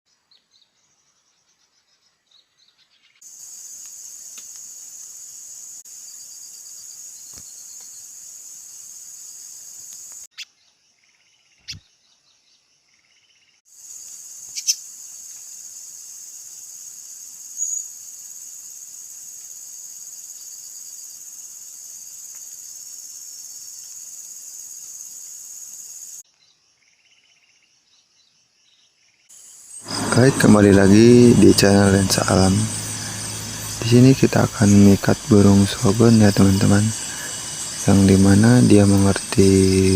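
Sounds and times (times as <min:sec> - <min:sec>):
high-pitched insect drone: 0:13.8 - 0:26.2, 0:29.4 - 0:39.9
faint bird chirps: 0:17.4 - 0:18.4.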